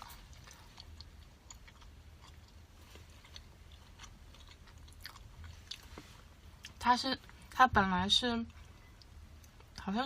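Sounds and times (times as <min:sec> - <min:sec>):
faint chewing: 0:00.0 - 0:07.6.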